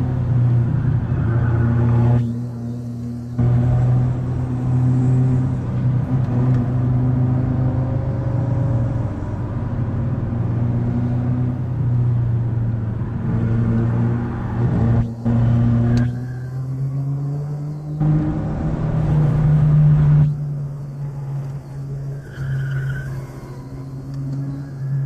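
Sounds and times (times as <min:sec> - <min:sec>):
tyre and road noise: 0:00.0 - 0:25.0.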